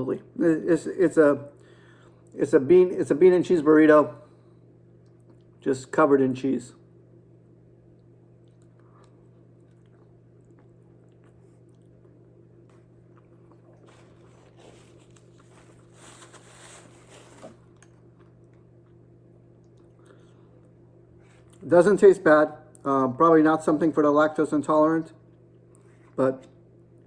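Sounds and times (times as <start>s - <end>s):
steady low hum: 0.0s - 27.0s
person chewing food: 7.9s - 21.6s.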